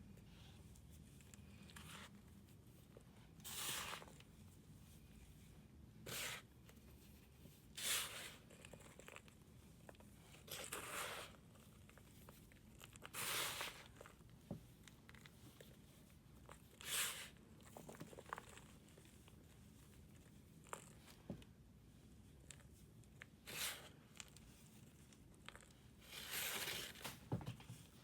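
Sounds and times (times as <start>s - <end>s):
crunchy scraping of powder block: 25.5s - 27.0s.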